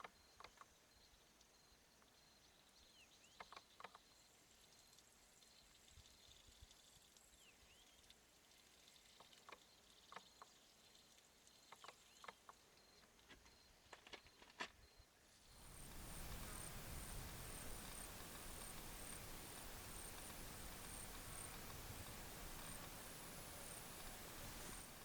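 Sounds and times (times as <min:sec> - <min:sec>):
broad rush of noise: 0:15.6 - 0:25.0.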